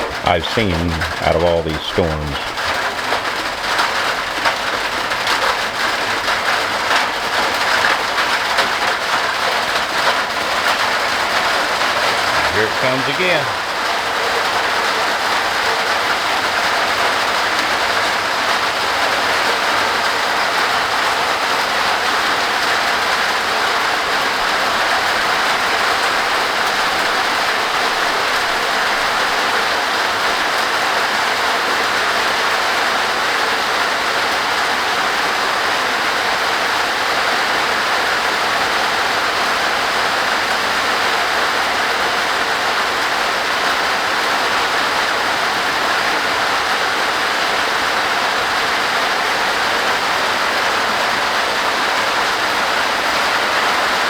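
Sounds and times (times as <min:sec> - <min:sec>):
heavy rain on a tin roof: 0:00.0 - 0:54.0.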